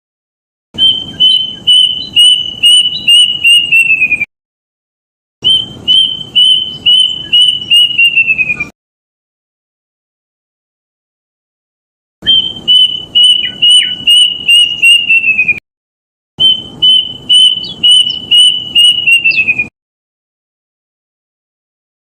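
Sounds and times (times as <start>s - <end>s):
cuckoo whistled notes: 0.8s - 4.3s, 5.4s - 8.7s, 12.2s - 15.6s, 16.4s - 19.7s.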